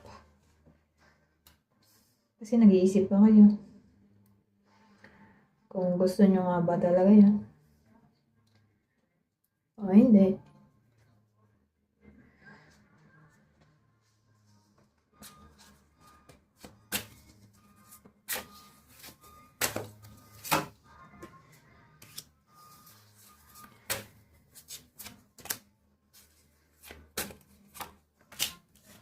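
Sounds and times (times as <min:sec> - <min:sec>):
cards snapping and tapping: 0:16.3 - 0:17.3, 0:18.3 - 0:20.7, 0:23.7 - 0:25.6, 0:26.8 - 0:29.0.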